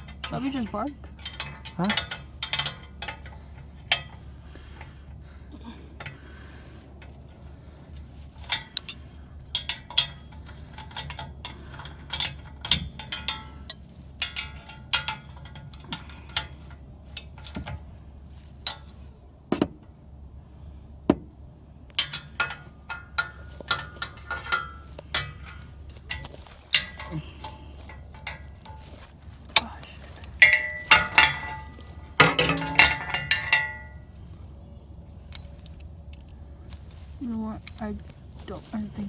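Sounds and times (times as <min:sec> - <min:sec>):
metallic clinks of hand tools: 0:00.0 - 0:04.2, 0:08.4 - 0:16.6, 0:22.0 - 0:29.0, 0:29.6 - 0:34.1
steady low hum: 0:00.0 - 0:39.0.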